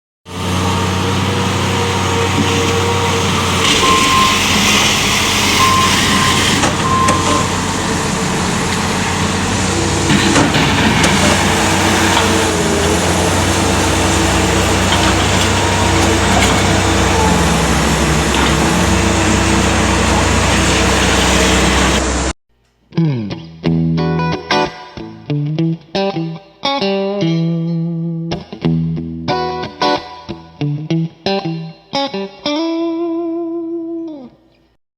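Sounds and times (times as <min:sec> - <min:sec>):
skid steer loader engine running: 0:00.3 - 0:22.3
short high beeps: 0:05.6 - 0:07.5.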